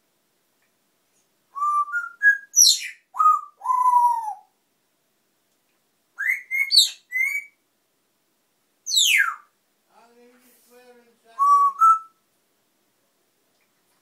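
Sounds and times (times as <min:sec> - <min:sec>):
parrot whistling: 0:06.2 - 0:07.6, 0:08.9 - 0:09.5.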